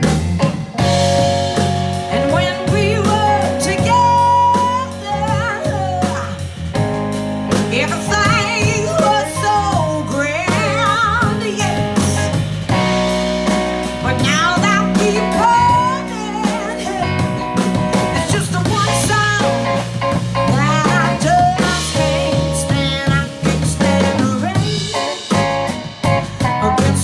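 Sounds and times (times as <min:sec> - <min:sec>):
bass: 0:00.0 - 0:27.0
blues band playing: 0:00.0 - 0:27.0
drums: 0:00.0 - 0:27.0
sliding lead guitar line: 0:00.0 - 0:27.0.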